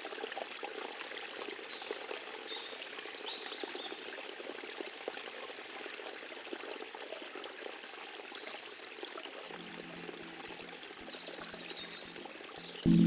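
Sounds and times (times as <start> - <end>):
stream water trickling: 0.0 - 13.0
low music tones: 9.5 - 13.0.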